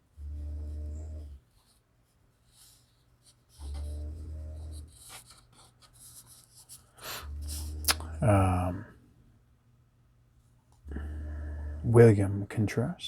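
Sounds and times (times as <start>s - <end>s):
cards sliding and rubbing: 4.8s - 7.7s.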